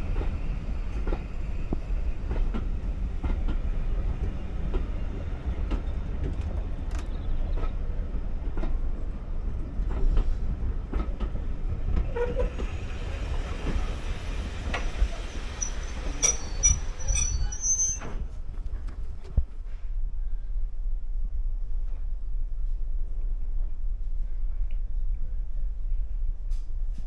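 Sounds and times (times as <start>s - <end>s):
train rumbling: 0.0s - 27.0s
high-pitched wheel squeal: 15.6s - 18.2s.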